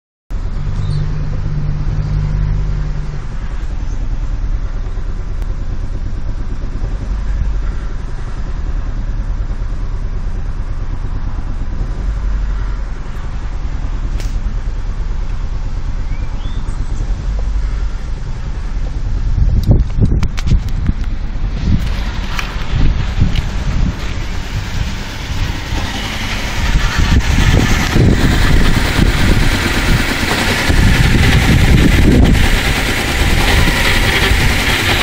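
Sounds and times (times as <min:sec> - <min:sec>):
steady low hum: 0:00.3 - 0:35.0
car engine idling roughly: 0:00.4 - 0:35.0.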